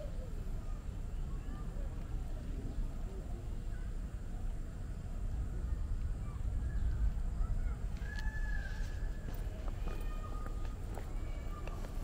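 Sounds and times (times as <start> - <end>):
steady low rumble: 0.4 - 12.0
faint bird chirps: 5.0 - 11.8.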